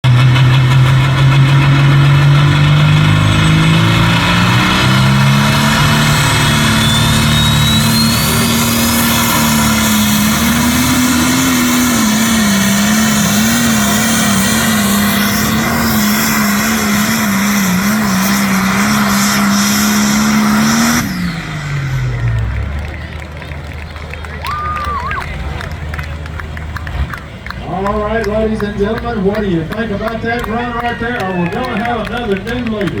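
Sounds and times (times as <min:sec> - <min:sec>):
truck engine at full throttle: 0:00.0 - 0:33.0.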